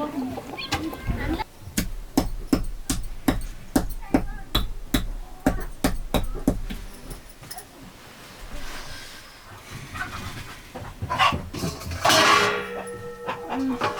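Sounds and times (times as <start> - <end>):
sharp knocks: 1.7 - 7.3.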